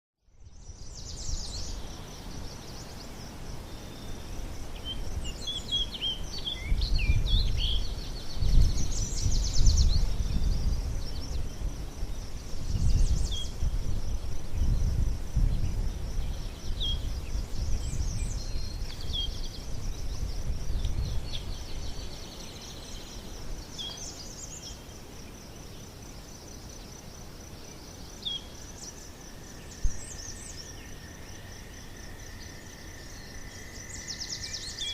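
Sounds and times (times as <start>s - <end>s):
high insect trill: 0.4s - 34.9s
bird chirps: 32.3s - 34.9s.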